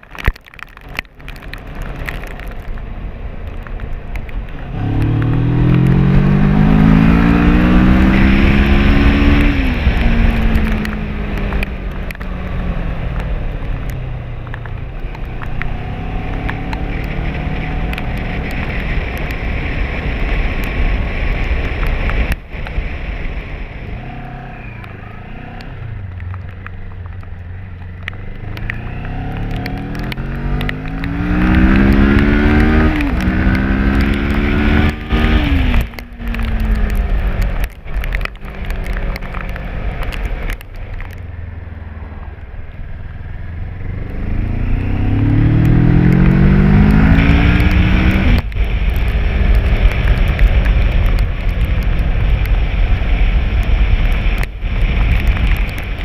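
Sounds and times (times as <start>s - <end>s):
motorcycle engine accelerating: 3.4s - 56.0s.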